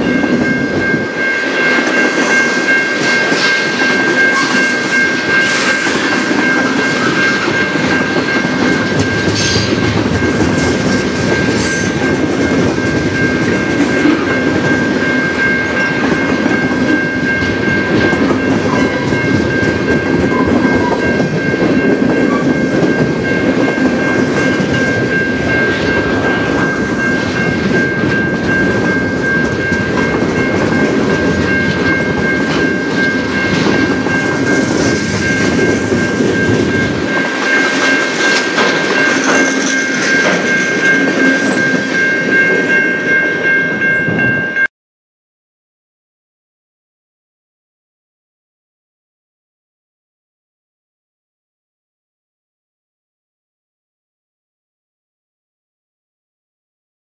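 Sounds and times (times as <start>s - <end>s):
crossing warning bell ringing: 0.0s - 44.7s
train low rumble: 0.0s - 44.7s
train wheels clacking over rail joints: 25.8s - 42.7s.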